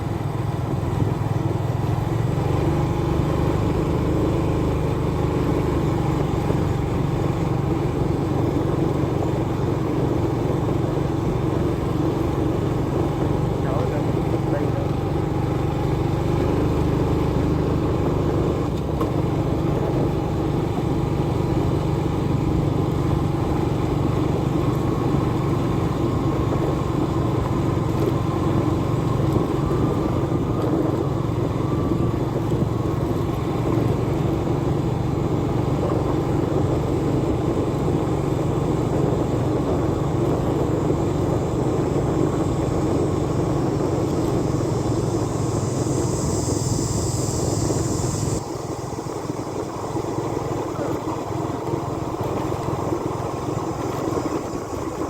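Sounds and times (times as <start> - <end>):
motorbike engine running: 0.0 - 55.0
road and wind noise: 0.0 - 55.0.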